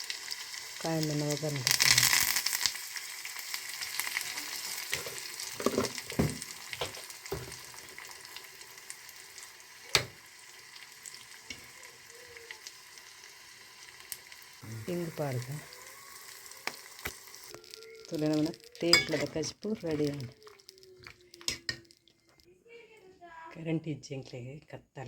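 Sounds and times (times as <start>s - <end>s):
spices sizzling in hot oil: 0.0s - 22.5s
spoon clinking against pan: 18.8s - 19.4s.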